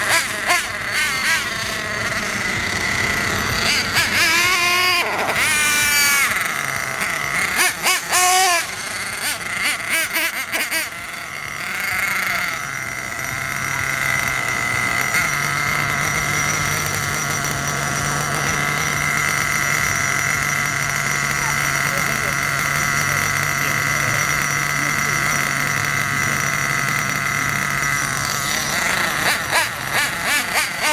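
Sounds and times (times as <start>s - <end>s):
small nitro engine revving and idling: 0.0s - 30.9s.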